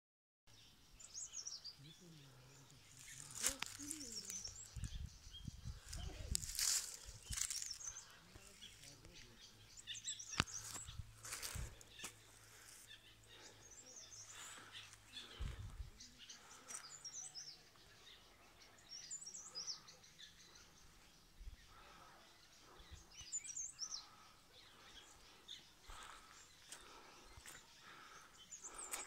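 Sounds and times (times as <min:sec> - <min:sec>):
birds chirping: 0:00.5 - 0:29.0.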